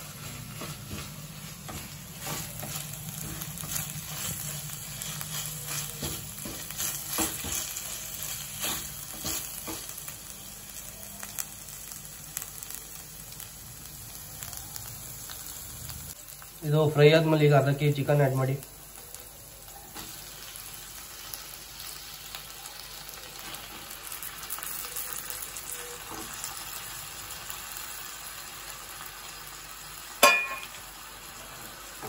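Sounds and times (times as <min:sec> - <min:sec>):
wooden spatula scraping a pan: 0:00.0 - 0:09.9
onions sizzling in hot oil: 0:00.0 - 0:32.0.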